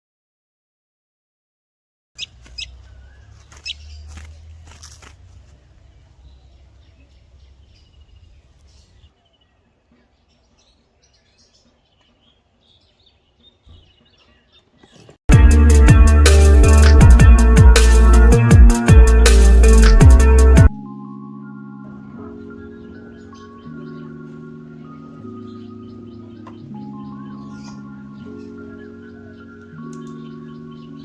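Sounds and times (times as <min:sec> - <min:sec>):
small birds chirping: 0:02.2 - 0:15.2, 0:21.9 - 0:31.0
electronic music with heavy bass: 0:15.3 - 0:25.4.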